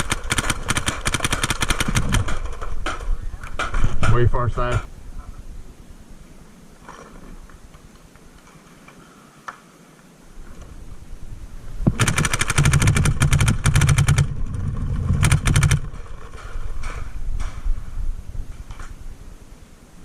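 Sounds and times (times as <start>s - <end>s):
paintball marker firing rapidly: 0.0s - 2.5s, 11.9s - 14.4s.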